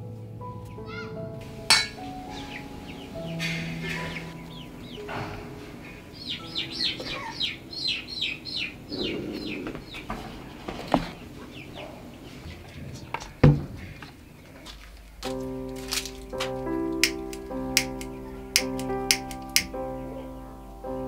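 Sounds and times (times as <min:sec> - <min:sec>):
bird chirping: 0:01.5 - 0:15.2
sharp click: 0:17.0 - 0:19.7.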